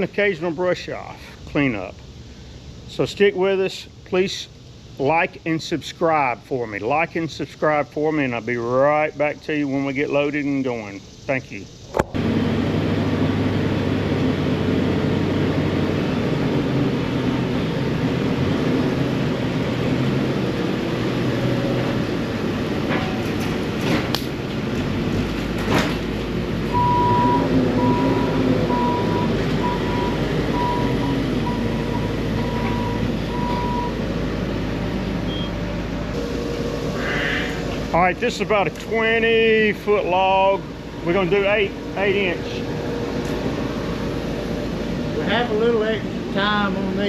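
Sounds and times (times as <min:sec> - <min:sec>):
engine running: 0:00.0 - 0:47.0
short beeps: 0:26.8 - 0:34.0, 0:35.3 - 0:35.6.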